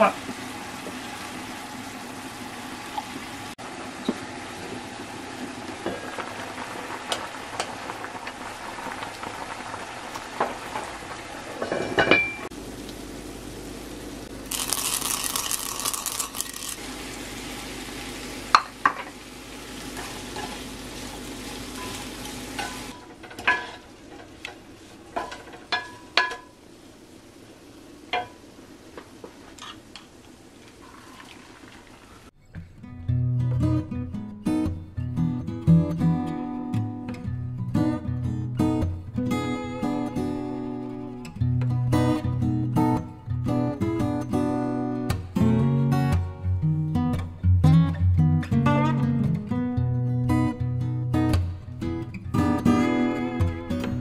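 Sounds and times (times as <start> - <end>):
food sizzling in a pan: 0.0 - 32.3
utensils clinking against dishes: 21.8 - 23.8.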